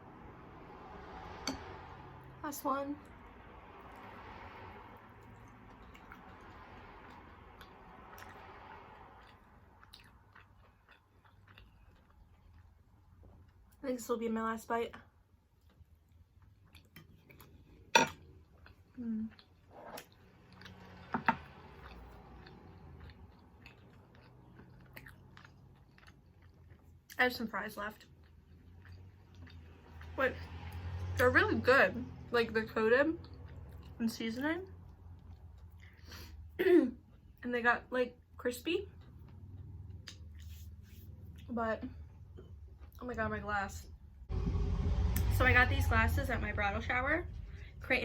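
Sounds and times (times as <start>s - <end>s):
low steady hum: 0.0s - 48.0s
person chewing food: 5.1s - 13.8s, 15.4s - 27.2s, 28.0s - 30.1s, 33.2s - 34.0s, 34.8s - 37.4s, 38.9s - 41.5s.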